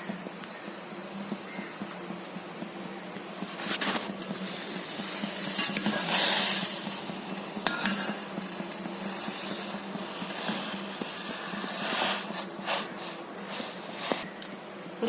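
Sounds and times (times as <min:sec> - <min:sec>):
steady low hum: 0:00.0 - 0:15.0
spoon stirring and scraping pot: 0:03.4 - 0:14.6.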